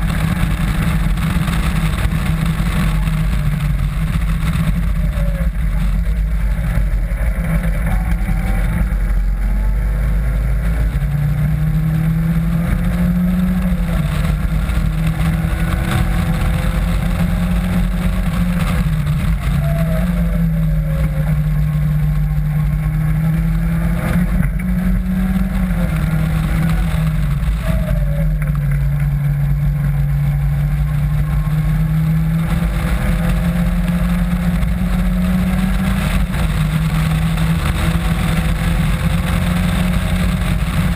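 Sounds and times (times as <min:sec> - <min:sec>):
sports car engine accelerating: 0:00.0 - 0:40.9
wind rush: 0:10.7 - 0:40.9.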